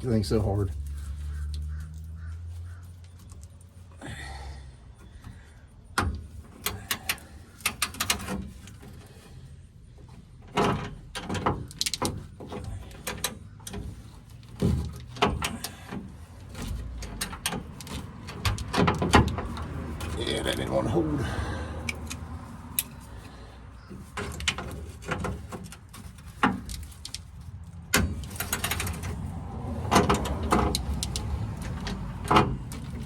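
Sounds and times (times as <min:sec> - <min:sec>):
pliers clanking against metal nut: 0:29.9 - 0:33.0.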